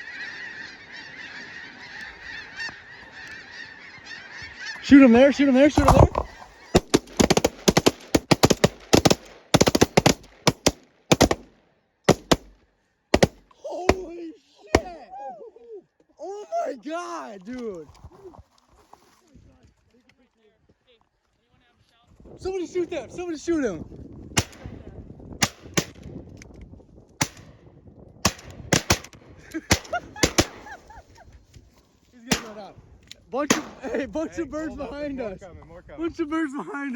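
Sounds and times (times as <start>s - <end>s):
shotgun fire: 6.8s - 11.5s, 12.1s - 12.6s, 13.2s - 14.1s, 24.4s - 24.8s, 25.4s - 26.0s, 28.2s - 30.7s, 32.3s - 32.7s, 33.5s - 34.0s.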